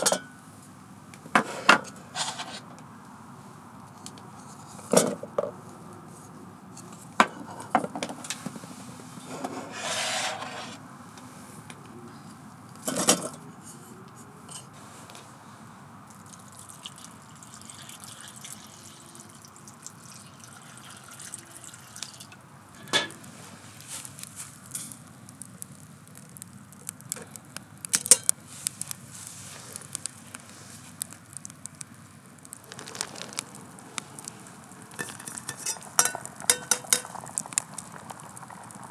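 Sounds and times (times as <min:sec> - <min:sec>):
cooking gear clinks and knocks: 0:32.6 - 0:33.6, 0:34.4 - 0:37.2.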